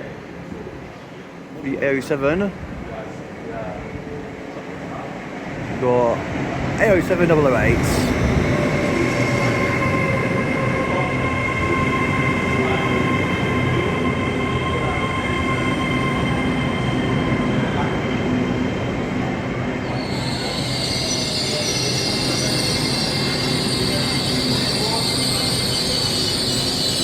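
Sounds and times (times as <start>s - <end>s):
train wheels rumbling: 4.9s - 27.0s
electric train whine: 6.3s - 27.0s
high squeal of brakes: 19.8s - 27.0s.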